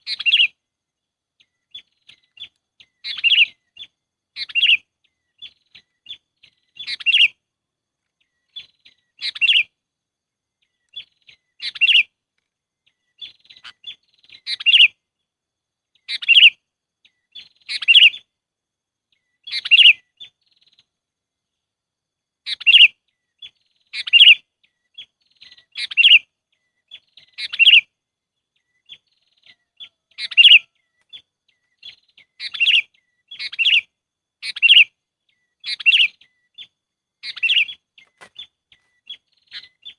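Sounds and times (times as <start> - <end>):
bulbul chirping: 0.0 - 0.6, 1.4 - 7.4, 28.6 - 39.9.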